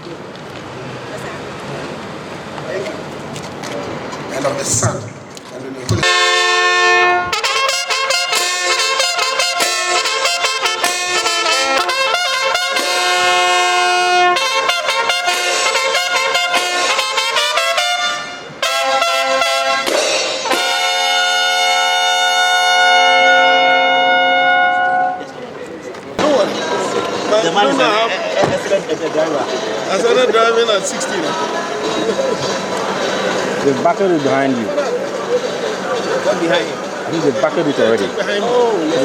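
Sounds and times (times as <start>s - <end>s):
brass band playing: 6.0s - 25.4s.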